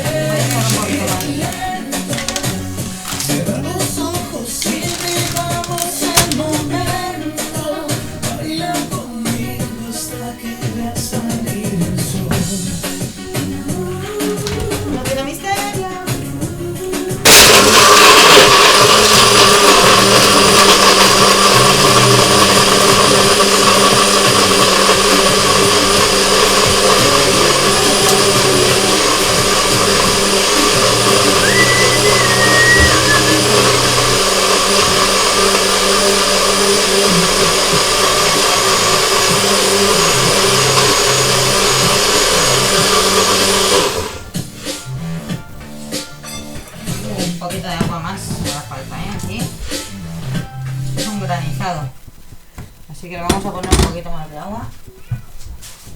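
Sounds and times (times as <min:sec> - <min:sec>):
electric blender crushing ice: 0:00.0 - 0:09.8, 0:17.2 - 0:44.4.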